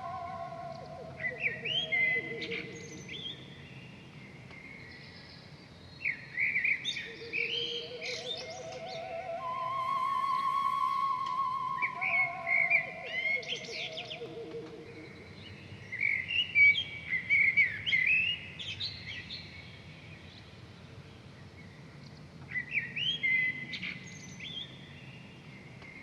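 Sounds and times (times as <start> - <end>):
birds chirping and trilling: 0.0 - 4.0, 6.5 - 16.8
musical note sliding down: 7.8 - 14.7.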